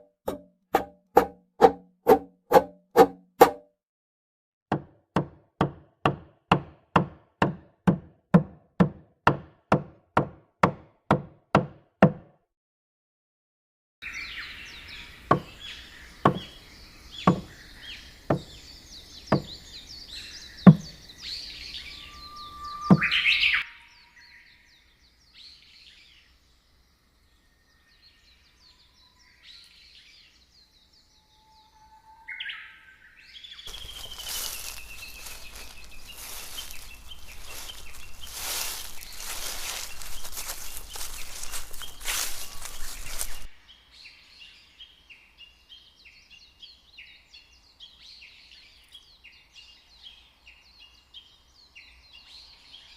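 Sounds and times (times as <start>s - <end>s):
knocking strikes: 0.0s - 3.6s, 17.3s - 17.5s, 20.7s - 21.0s
birds chirping and singing: 14.0s - 26.6s, 27.7s - 52.9s.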